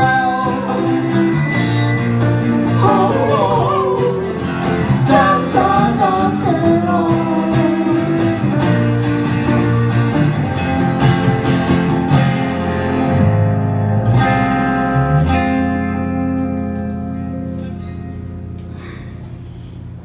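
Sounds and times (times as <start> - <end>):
live band playing instrumental: 0.0 - 3.4, 7.4 - 17.7
guitar chords strummed and picked: 0.0 - 18.9.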